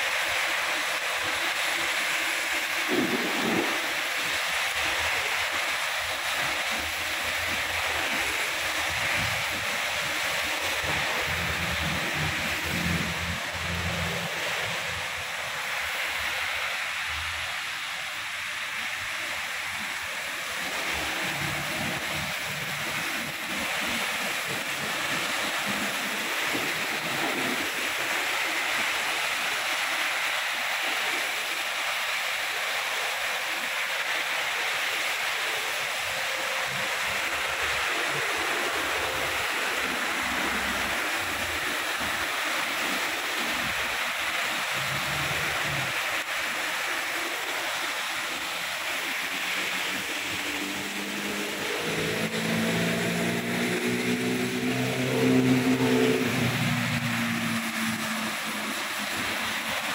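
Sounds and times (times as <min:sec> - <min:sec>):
heavy rain hissing: 0:00.0 - 0:59.9
road traffic rumbling: 0:10.4 - 0:16.3, 0:48.6 - 0:59.8.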